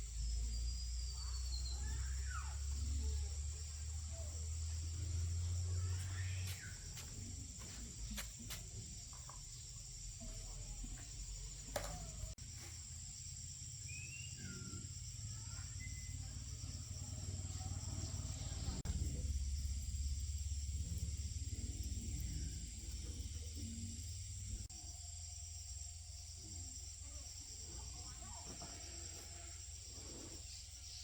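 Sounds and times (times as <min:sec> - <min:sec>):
low hum: 0:16.2 - 0:26.1.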